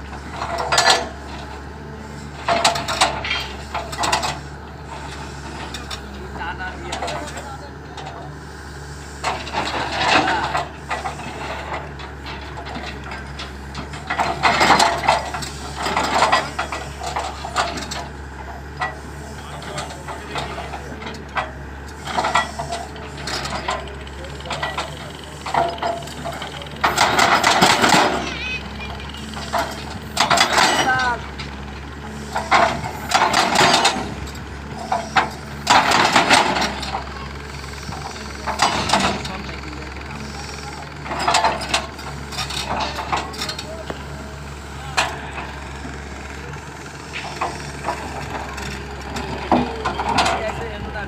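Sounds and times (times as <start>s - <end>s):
excavator diesel engine running: 0.0s - 51.0s
hydraulic breaker hammer chattering: 9.2s - 51.0s.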